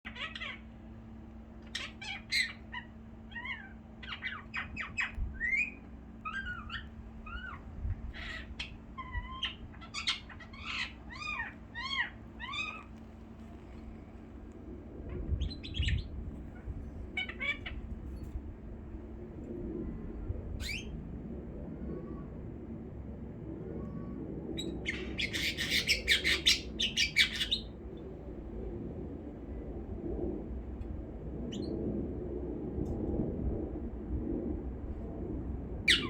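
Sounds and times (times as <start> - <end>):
faint hum: 0.1 - 36.0
birds chirping and whistling: 1.7 - 12.9, 15.4 - 16.1, 20.6 - 20.9, 24.6 - 27.7.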